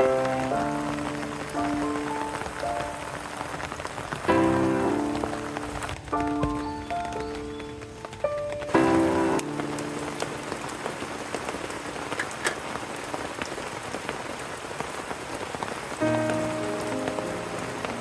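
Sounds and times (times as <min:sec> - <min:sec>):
background music: 0:00.0 - 0:03.4, 0:04.2 - 0:10.7, 0:16.0 - 0:18.0
sharp water drips: 0:00.0 - 0:18.0
steady rain hiss: 0:00.0 - 0:18.0.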